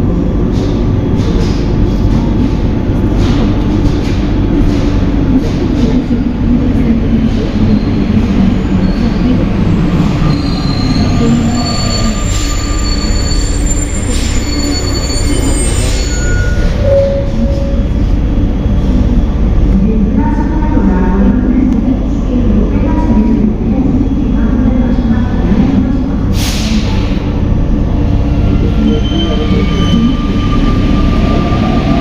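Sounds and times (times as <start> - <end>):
metro train running rumble: 0.0 - 32.0.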